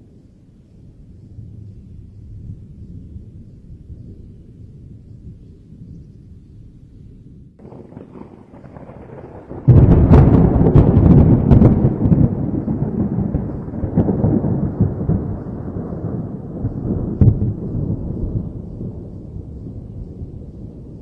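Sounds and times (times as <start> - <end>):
thunder rumbling: 0.0 - 21.0
loud thunderclap: 7.6 - 21.0.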